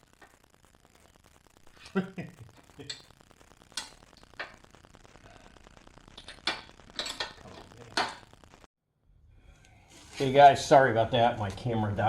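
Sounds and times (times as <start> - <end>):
sharp clicks and metallic clinks: 6.2 - 8.3.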